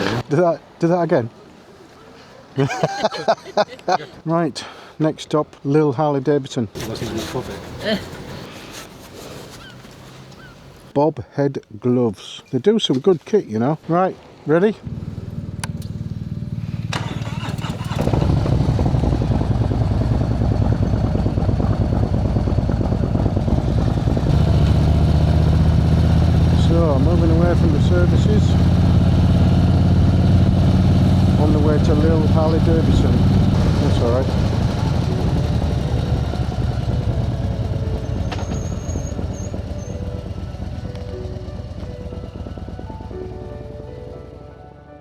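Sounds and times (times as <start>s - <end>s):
motorcycle engine idling: 14.8s - 44.6s
thin high whistle: 38.1s - 39.9s.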